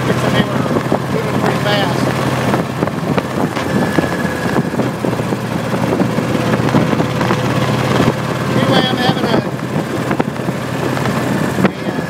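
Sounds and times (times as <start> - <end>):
motorcycle engine drone: 0.0 - 12.0
wind rushing past microphone: 0.0 - 12.0.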